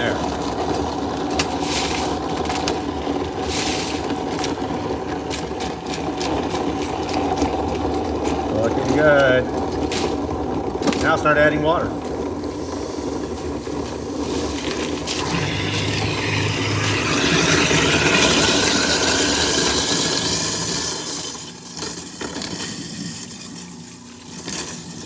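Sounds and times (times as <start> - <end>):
garbage disposal grinding ice: 0.0 - 25.0
tap water pouring: 12.6 - 23.6.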